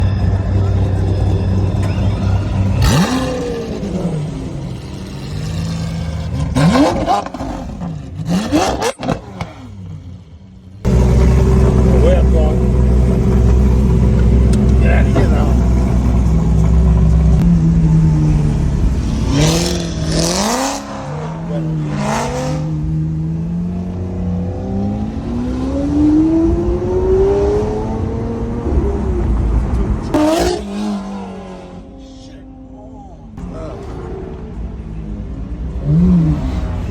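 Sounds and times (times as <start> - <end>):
exhaust crackling: 0.2 - 24.4
sports car engine revving: 0.9 - 36.9.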